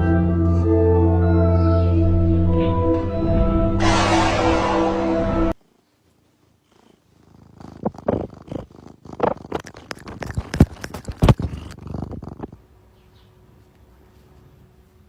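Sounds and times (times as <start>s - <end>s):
cat purring: 6.2s - 12.8s.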